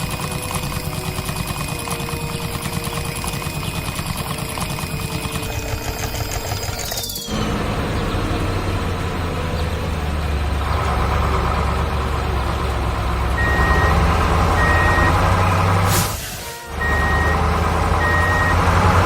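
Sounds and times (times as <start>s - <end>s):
heavy truck engine running: 0.0s - 19.0s
reversing alarm beeping: 13.3s - 19.0s
short air hiss: 15.8s - 16.7s.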